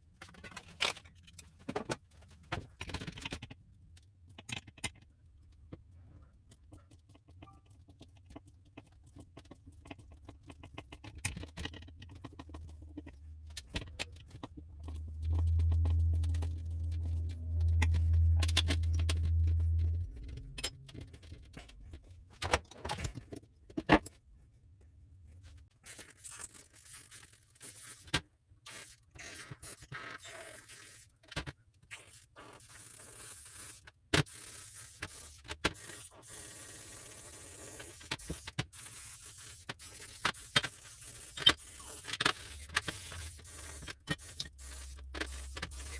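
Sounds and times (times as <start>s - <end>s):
low hum: 13.2s - 22.0s.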